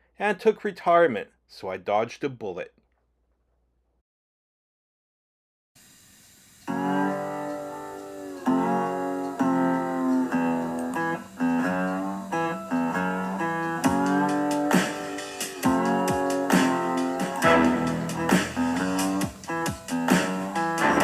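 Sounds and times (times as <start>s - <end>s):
guitar chords: 6.7s - 21.0s
sharp percussive hits: 13.8s - 21.0s.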